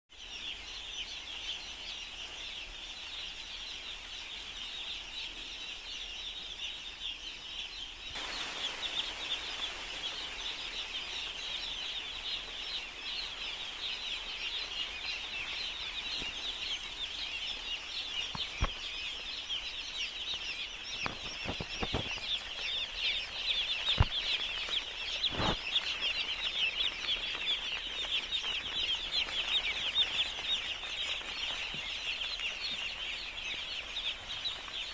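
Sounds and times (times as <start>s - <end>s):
chicks peeping: 0.1s - 34.9s
steady hiss: 7.6s - 34.9s.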